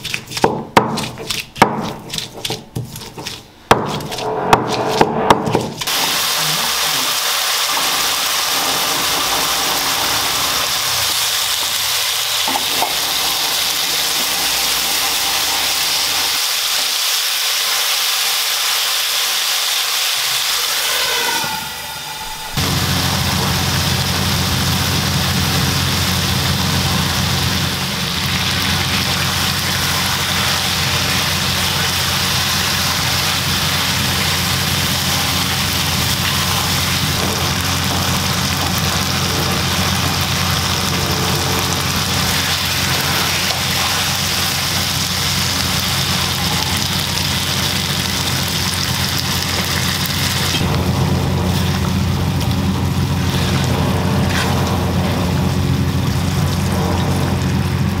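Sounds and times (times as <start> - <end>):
meat sizzling in a pan: 5.9 - 21.4, 22.6 - 50.7
low mechanical hum: 20.9 - 58.0.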